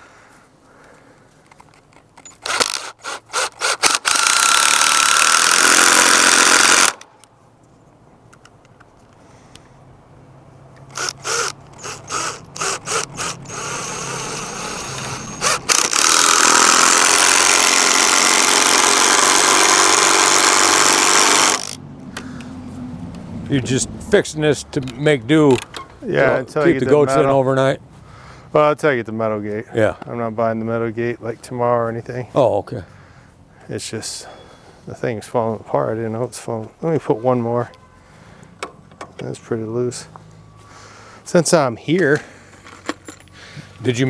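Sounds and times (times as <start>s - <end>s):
power drill driving screws: 2.2s - 7.1s, 10.9s - 21.8s.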